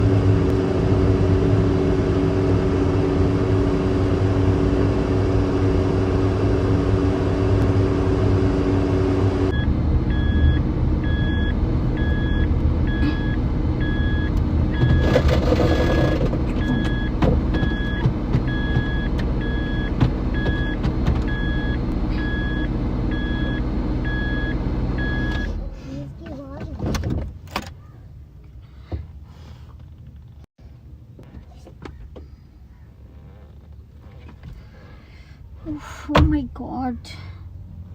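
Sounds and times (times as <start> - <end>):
car engine running: 0.0 - 36.8
dashboard warning chime beeping: 9.5 - 25.6.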